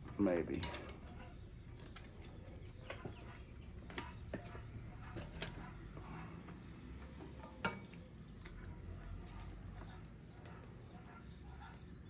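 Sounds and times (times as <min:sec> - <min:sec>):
hand tools clinking: 0:00.1 - 0:01.4.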